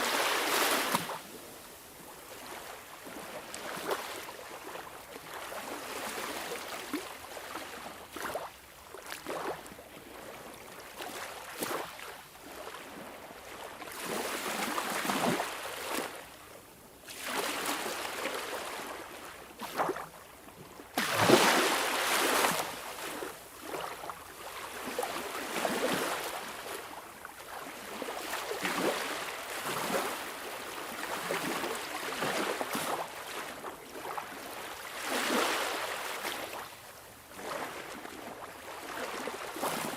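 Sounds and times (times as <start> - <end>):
sea waves splashing: 0.0 - 1.2, 21.0 - 23.9, 27.5 - 36.7.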